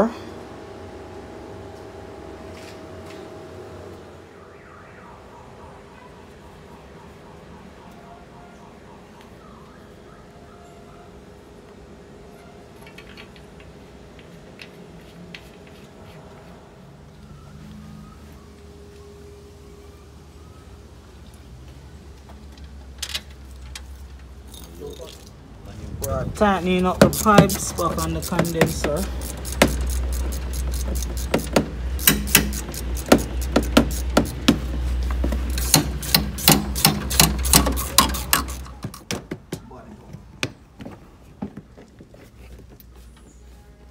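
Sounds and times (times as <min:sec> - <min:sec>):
steady background hum: 0:00.0 - 0:43.9
hand tools clicking on metal fittings: 0:26.9 - 0:34.7, 0:35.4 - 0:39.1.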